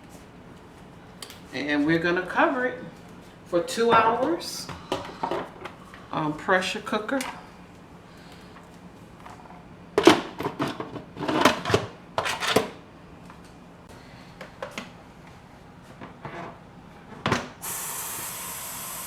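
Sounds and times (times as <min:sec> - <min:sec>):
steam hissing: 0:17.6 - 0:19.0.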